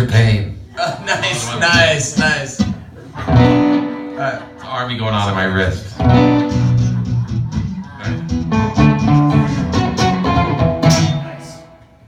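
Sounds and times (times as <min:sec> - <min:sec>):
acoustic guitar strumming: 0:03.2 - 0:05.4, 0:06.0 - 0:12.0.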